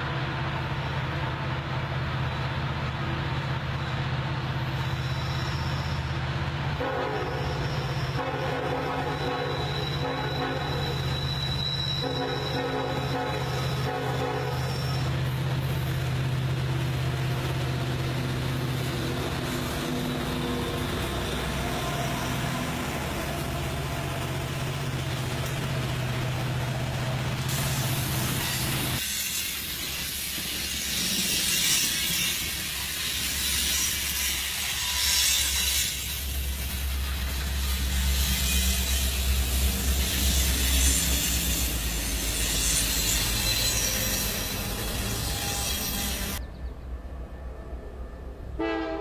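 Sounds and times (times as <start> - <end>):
locomotive engines droning: 0.0 - 49.0.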